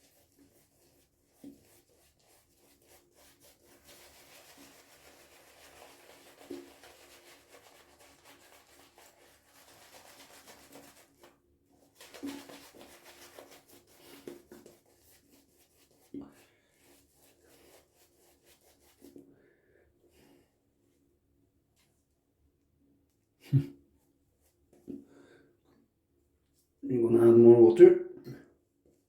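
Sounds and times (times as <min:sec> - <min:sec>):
shaving brush swishing lather: 0:00.0 - 0:19.2.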